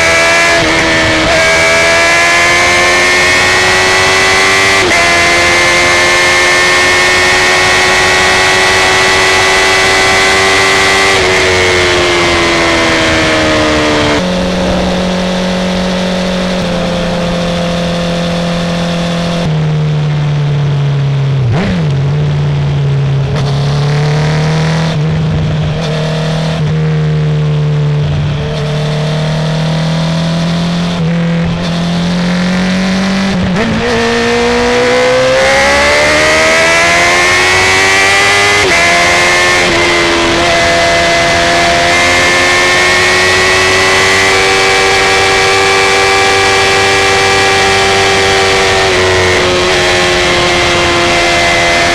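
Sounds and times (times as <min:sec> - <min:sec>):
lower engine note revving: 0:00.0 - 0:51.9
high engine note: 0:11.2 - 0:21.2.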